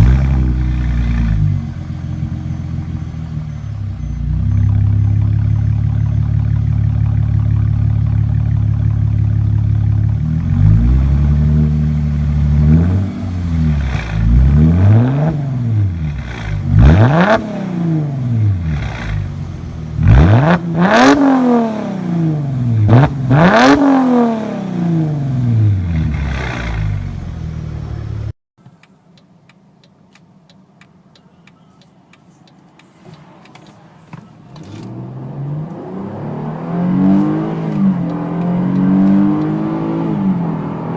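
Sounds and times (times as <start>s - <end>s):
faint engine ticking: 0.0s - 11.0s, 11.8s - 23.8s
car engine revving: 0.0s - 28.3s, 34.4s - 40.9s.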